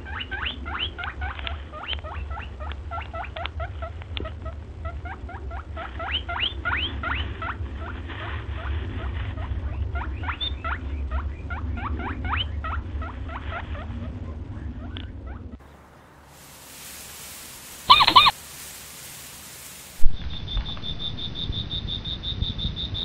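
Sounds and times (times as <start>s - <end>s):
steady low hum: 0.0s - 23.0s
squirrel chirping: 17.8s - 18.4s.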